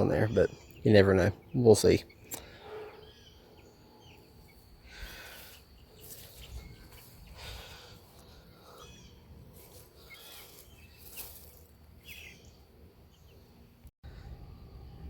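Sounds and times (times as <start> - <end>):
chicks peeping: 0.0 - 13.4
low rumble: 12.6 - 15.0.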